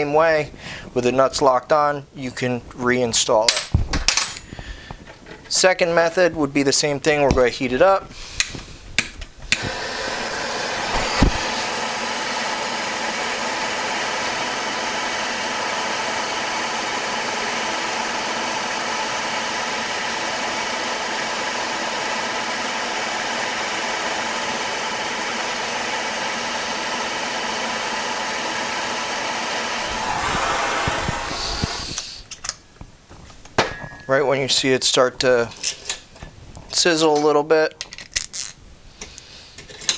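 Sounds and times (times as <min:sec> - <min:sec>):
heating tool blowing: 0:09.5 - 0:20.6, 0:27.0 - 0:32.3.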